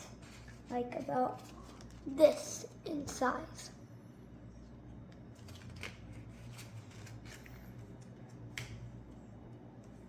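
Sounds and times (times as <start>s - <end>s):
steady low hum: 0.0s - 10.0s
paper crackling as folded: 5.3s - 8.7s.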